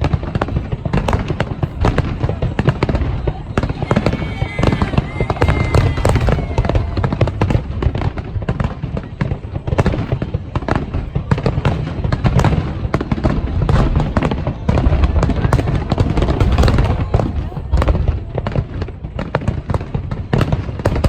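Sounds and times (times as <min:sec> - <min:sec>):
fireworks cracking: 0:00.0 - 0:21.0.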